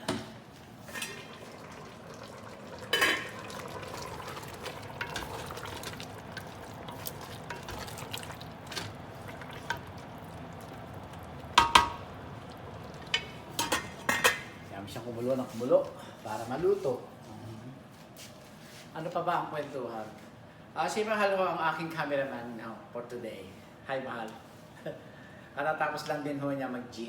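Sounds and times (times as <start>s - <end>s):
low sizzle: 0.0s - 17.0s
utensil stirring in a pot: 0.9s - 14.6s
utensil clinking against pot: 2.9s - 3.6s, 11.5s - 12.1s, 13.0s - 14.6s.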